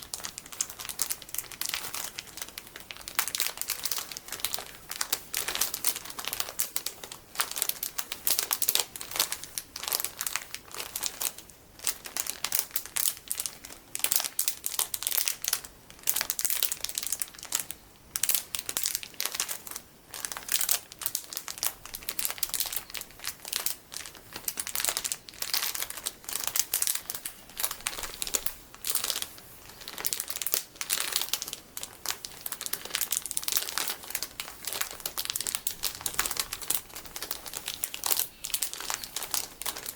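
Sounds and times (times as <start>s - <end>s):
plastic packaging crinkling: 0.0s - 39.9s.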